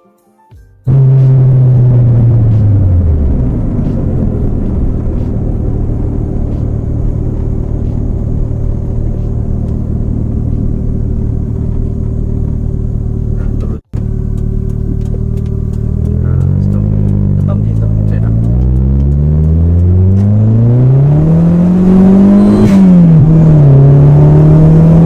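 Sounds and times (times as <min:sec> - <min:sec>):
car engine running steadily: 0:00.9 - 0:25.0.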